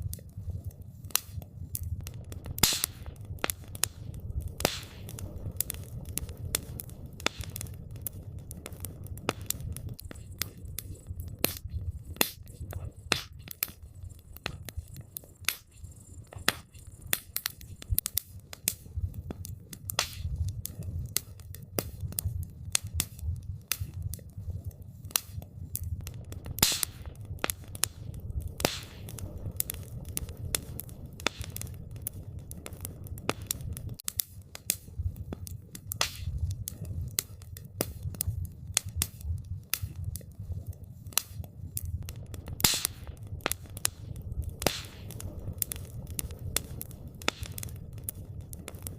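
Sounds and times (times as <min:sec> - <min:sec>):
campfire crackling and popping: 0:00.0 - 0:48.9
steady low rumble: 0:00.0 - 0:48.9.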